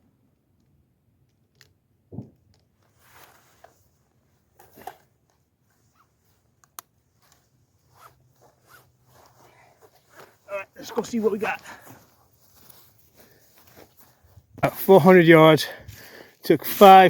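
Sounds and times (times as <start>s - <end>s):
rustling: 2.8s - 14.6s.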